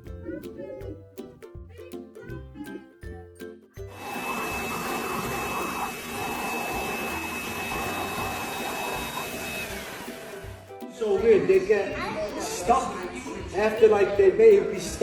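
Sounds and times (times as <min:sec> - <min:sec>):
motor rushing air with high whine: 0:03.9 - 0:10.6.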